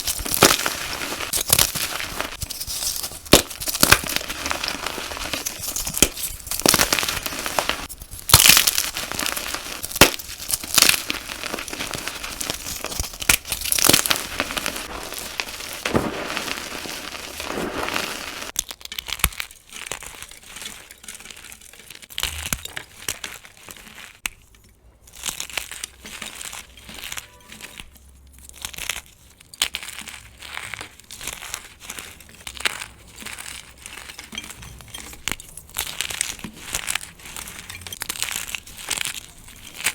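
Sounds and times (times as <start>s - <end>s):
chalk crunching: 0.0s - 18.6s, 28.5s - 39.9s.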